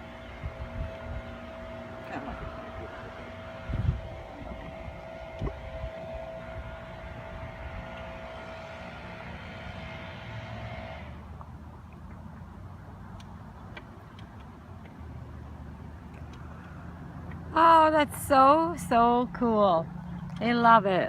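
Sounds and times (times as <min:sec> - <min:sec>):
wind buffeting microphone: 0:00.0 - 0:10.2
small motor humming: 0:00.0 - 0:11.3.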